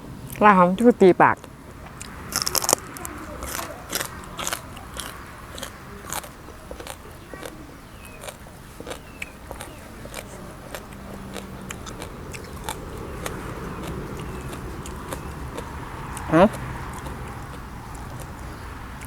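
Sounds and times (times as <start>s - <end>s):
person crunching and chewing: 1.4s - 19.0s.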